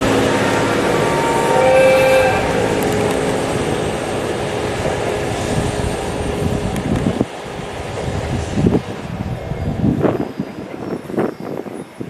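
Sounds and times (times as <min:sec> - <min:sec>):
train horn chord: 0:00.0 - 0:06.1
diesel train rumbling: 0:00.0 - 0:12.0.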